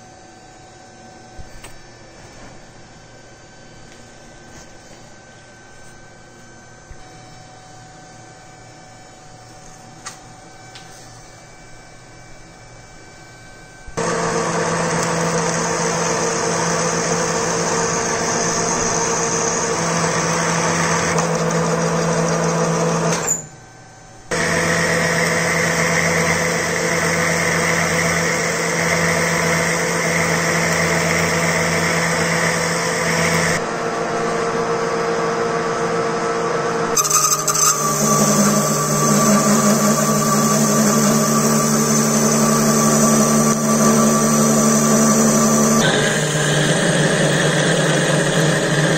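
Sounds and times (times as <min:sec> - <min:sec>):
lathe electric motor running: 0:14.0 - 0:23.4, 0:24.3 - 0:36.3, 0:36.9 - 0:48.9.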